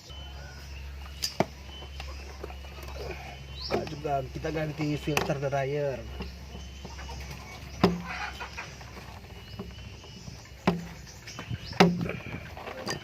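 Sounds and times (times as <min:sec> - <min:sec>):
sharp knocks on pipework: 0:07.8 - 0:08.1, 0:10.6 - 0:11.0, 0:11.7 - 0:12.2.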